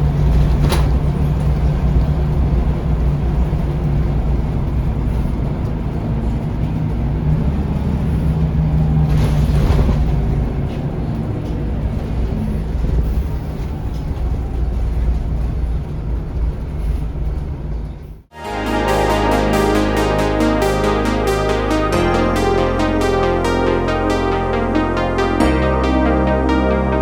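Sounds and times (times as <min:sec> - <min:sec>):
bus engine and road drone: 0:00.0 - 0:18.2.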